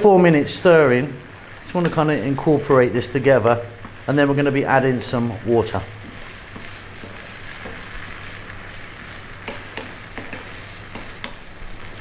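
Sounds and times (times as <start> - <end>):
food sizzling in oil: 0.0 - 12.0
wooden spatula scraping and clicking: 6.0 - 8.1, 9.4 - 11.4.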